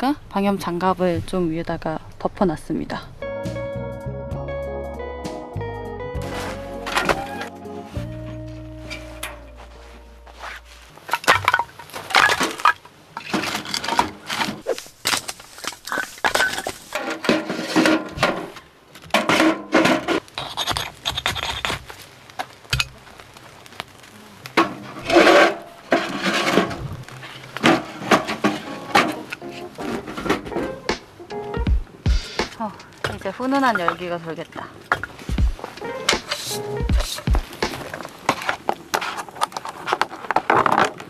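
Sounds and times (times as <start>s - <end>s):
firewood knocking: 11.0s - 13.6s, 15.0s - 34.2s, 34.8s - 39.7s.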